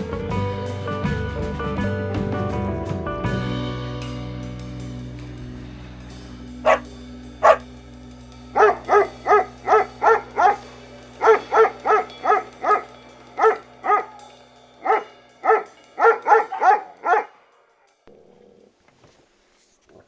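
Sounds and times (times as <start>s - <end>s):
dog barking: 6.6s - 7.7s, 8.6s - 14.2s, 14.8s - 17.4s.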